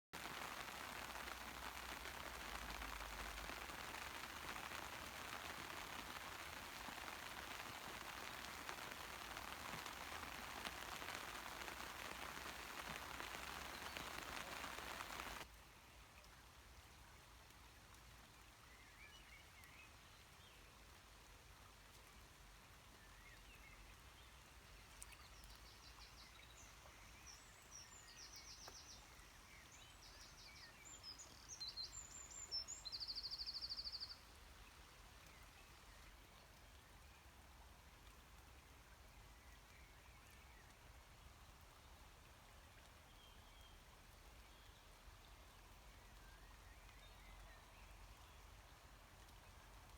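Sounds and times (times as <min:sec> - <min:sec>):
heavy rain hissing: 0:00.2 - 0:15.4.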